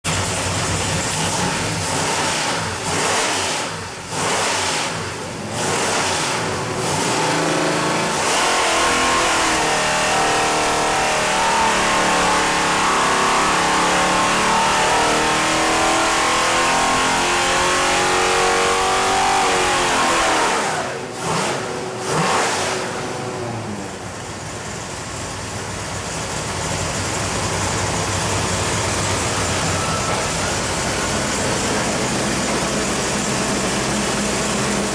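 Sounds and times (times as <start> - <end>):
engine running steadily: 0.1 - 34.9
engine throttle blips: 0.1 - 34.9
engine full-load pull: 18.4 - 34.9.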